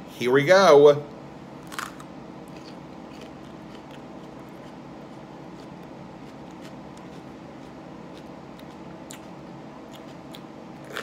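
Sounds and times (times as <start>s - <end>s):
faint chewing with clicks: 2.5s - 11.0s.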